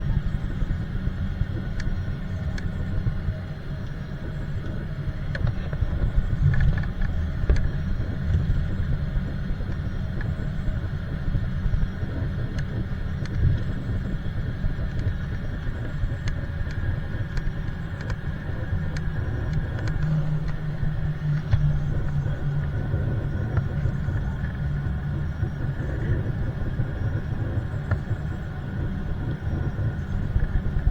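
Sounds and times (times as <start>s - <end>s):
airliner cabin rumble: 0.0s - 30.9s
low hum: 0.0s - 30.9s
light clicks and rattles: 1.4s - 10.8s, 11.4s - 26.4s.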